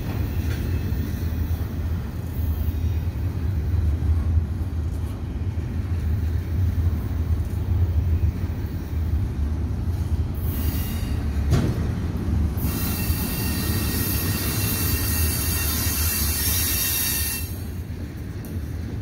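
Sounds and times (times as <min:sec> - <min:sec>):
freight train rumbling past: 0:00.0 - 0:19.0
high hiss from train wheels: 0:10.4 - 0:11.4, 0:12.6 - 0:17.9.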